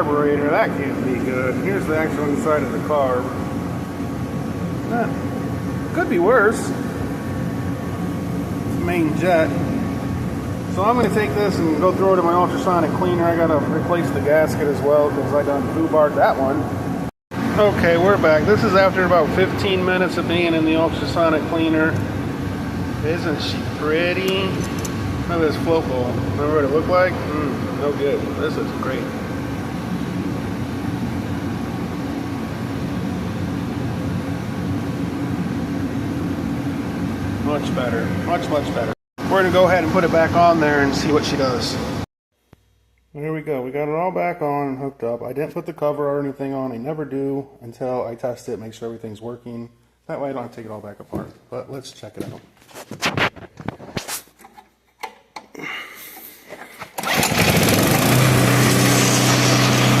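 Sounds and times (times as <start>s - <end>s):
low mechanical hum: 0.0s - 60.0s
snowblower engine starting and running: 57.0s - 60.0s.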